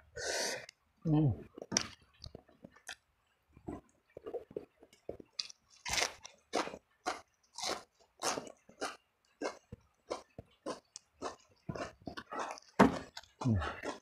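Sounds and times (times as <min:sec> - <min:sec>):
mouth chewing and crunching food: 0:01.4 - 0:14.0.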